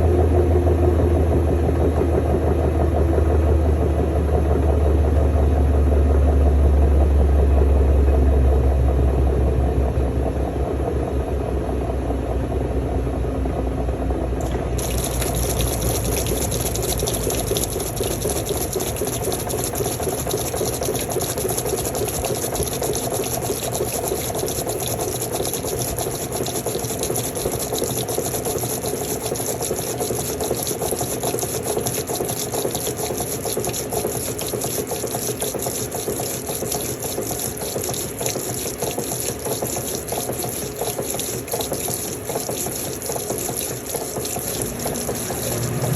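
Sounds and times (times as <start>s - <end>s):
washing machine motor hum: 0.0s - 45.9s
water rushing: 14.4s - 45.9s.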